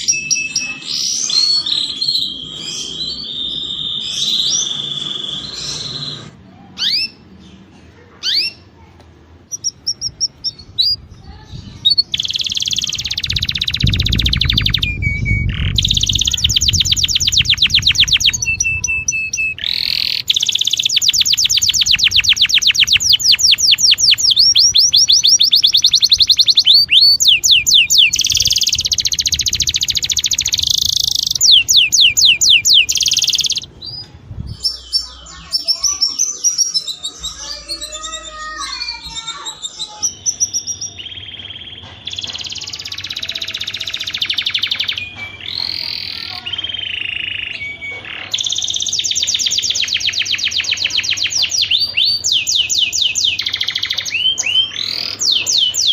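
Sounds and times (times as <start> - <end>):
canary trilling and warbling: 0.0 - 7.6, 8.2 - 8.7, 9.4 - 55.9.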